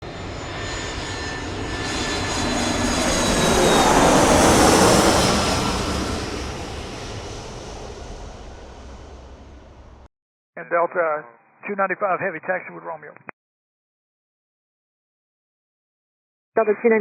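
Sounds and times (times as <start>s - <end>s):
jet airliner passing by: 0.0s - 10.1s.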